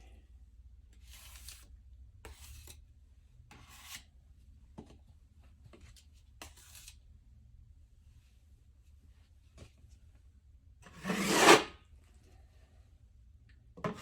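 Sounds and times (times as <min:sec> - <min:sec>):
hand tool scraping drywall: 0:10.9 - 0:11.8.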